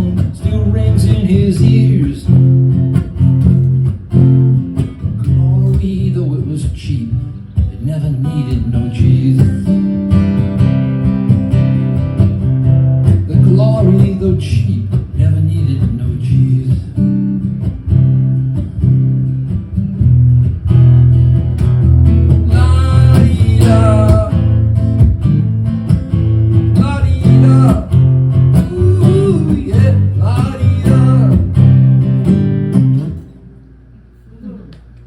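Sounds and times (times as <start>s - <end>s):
person singing wordless lines: 0.0s - 2.5s, 5.2s - 10.0s, 13.2s - 17.0s, 22.4s - 24.8s, 26.7s - 31.7s
acoustic guitar strumming chords: 0.0s - 34.2s.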